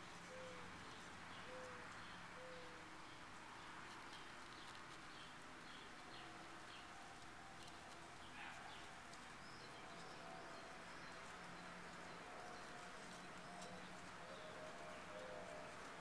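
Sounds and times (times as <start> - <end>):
low steady background noise: 0.0 - 16.0.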